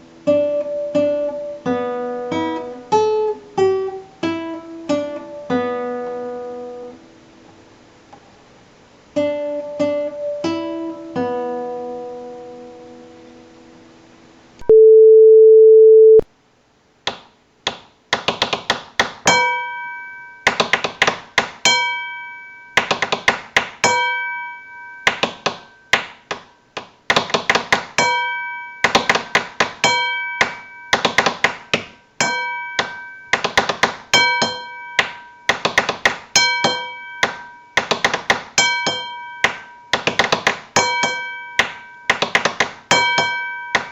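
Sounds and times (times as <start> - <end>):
steady electronic tone: 14.6 - 16.2.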